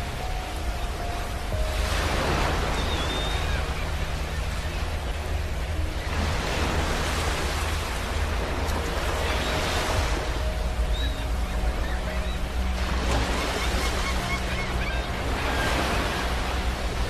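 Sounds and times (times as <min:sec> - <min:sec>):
ocean waves breaking on beach: 0:00.0 - 0:17.0
faint high chirp: 0:02.4 - 0:04.8.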